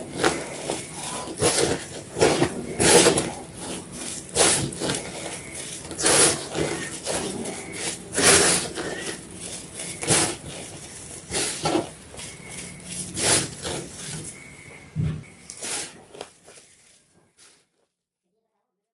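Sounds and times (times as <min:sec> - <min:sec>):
grainy crackle: 0:00.0 - 0:14.6
chalk block crunching: 0:00.0 - 0:17.7.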